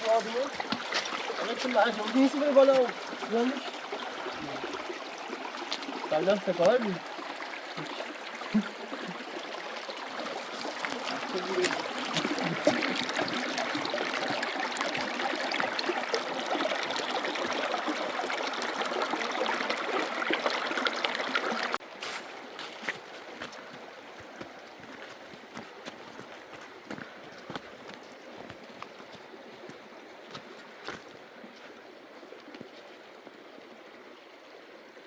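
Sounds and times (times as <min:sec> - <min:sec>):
running water rushing: 0:00.0 - 0:35.0.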